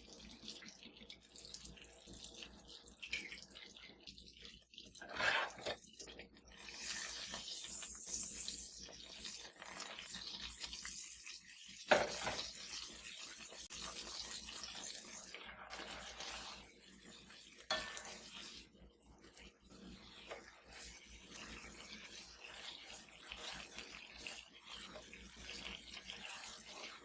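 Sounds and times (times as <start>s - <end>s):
food sizzling in a pan: 0.0s - 27.0s
utensil stirring food: 0.1s - 27.0s
utensil clinking against pan: 17.7s - 18.1s.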